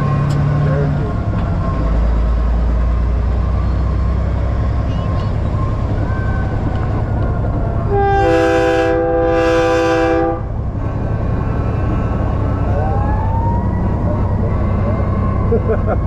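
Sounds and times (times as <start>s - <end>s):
diesel truck engine drone: 0.0s - 16.0s.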